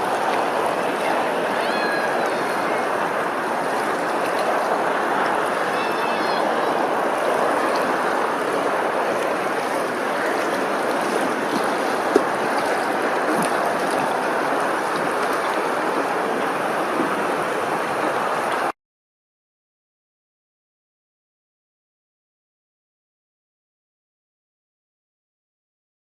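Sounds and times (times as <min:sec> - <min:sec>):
rush of flowing water: 0:00.0 - 0:18.8.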